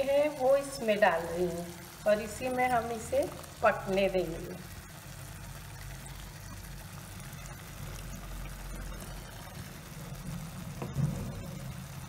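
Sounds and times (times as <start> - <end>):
food sizzling in a pan: 0.0 - 12.0
small crackles: 0.0 - 12.0.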